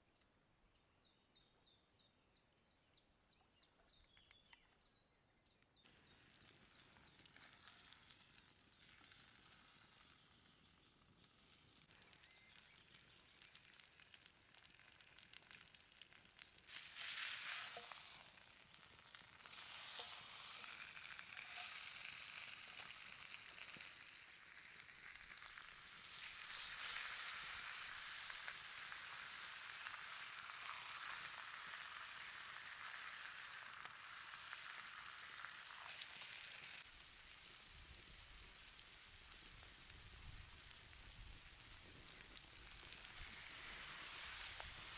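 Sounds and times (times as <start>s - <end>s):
steak sizzling in a pan: 5.9s - 44.9s.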